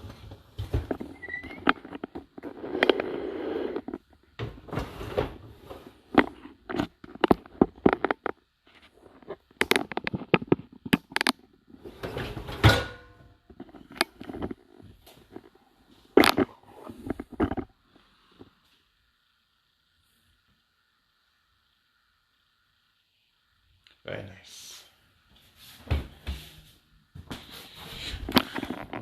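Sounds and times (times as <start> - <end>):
dishwasher racks rolling on rails: 4.4 - 6.1, 11.8 - 13.3.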